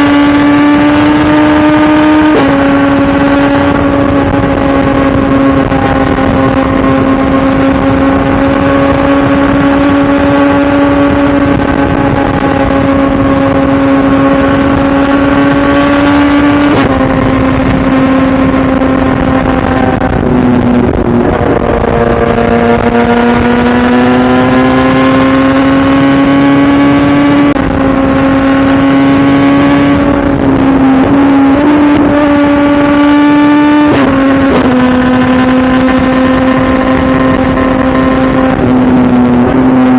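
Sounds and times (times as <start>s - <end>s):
motorcycle engine at high revs: 0.0s - 39.9s.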